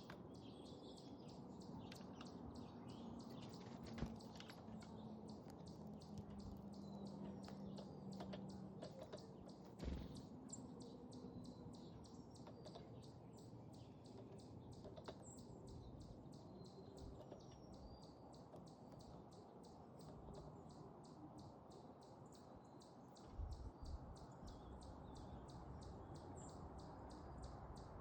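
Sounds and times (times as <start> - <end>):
low thump: 9.8 - 10.2.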